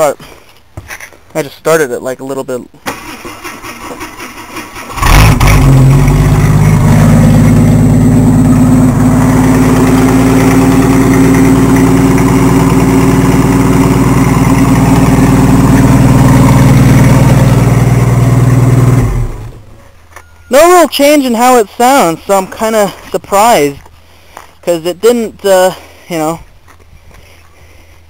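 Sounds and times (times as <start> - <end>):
loud engine idling: 4.9 - 19.6.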